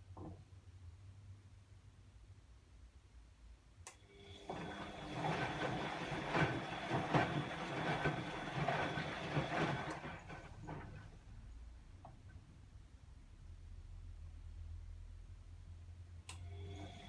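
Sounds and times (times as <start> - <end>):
laundry and water sloshing: 4.5 - 11.1.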